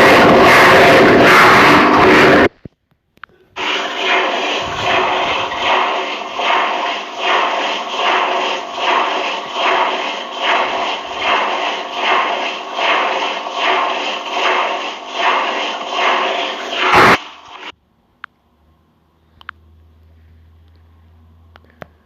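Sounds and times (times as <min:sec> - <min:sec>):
washing machine hum: 0:00.0 - 0:02.5, 0:03.6 - 0:17.7
washing machine drum swishing: 0:03.6 - 0:17.7.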